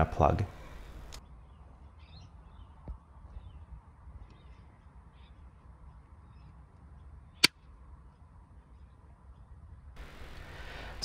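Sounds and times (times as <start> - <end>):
distant birds calling: 0.0 - 11.0
low steady hum: 0.0 - 11.0.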